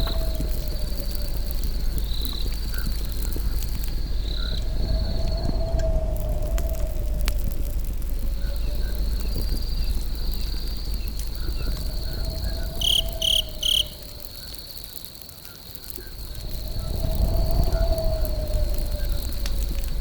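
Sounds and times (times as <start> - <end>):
campfire rumbling: 0.0 - 20.0
insect trill: 0.0 - 20.0
loud chirps: 12.1 - 14.2.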